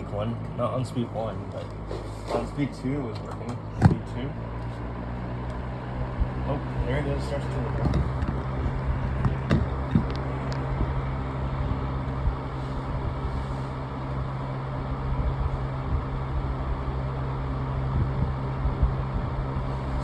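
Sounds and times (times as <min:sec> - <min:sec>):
box fan running: 0:00.0 - 0:20.0.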